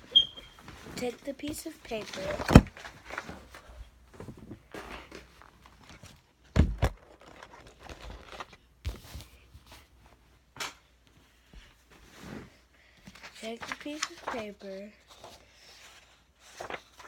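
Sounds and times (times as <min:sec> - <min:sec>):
paper rustling and creasing: 0:00.6 - 0:10.0, 0:12.0 - 0:17.0
paper crackling: 0:01.8 - 0:03.6, 0:06.9 - 0:09.1, 0:13.2 - 0:17.0.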